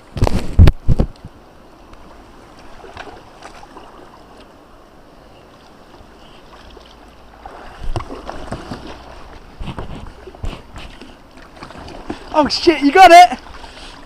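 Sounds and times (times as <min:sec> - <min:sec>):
water washing around kayak: 0:00.0 - 0:14.0
splashes and knocks: 0:02.6 - 0:04.1, 0:06.6 - 0:13.8.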